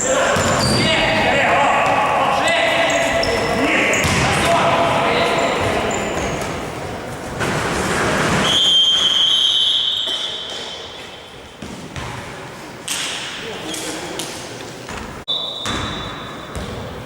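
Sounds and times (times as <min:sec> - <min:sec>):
players' voices: 0:00.0 - 0:08.0
ball bouncing: 0:03.0 - 0:04.6, 0:11.6 - 0:12.3
referee's whistle blast: 0:08.4 - 0:10.5.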